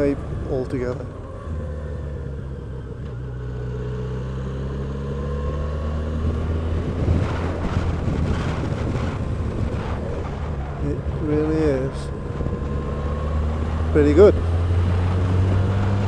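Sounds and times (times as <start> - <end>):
wind buffeting microphone: 4.5 - 16.0.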